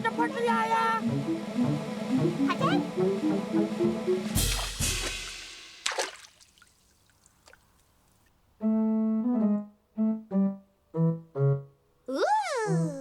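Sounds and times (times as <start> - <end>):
cartoon keyboard music: 0.0 - 4.2
short splash: 4.4 - 7.8.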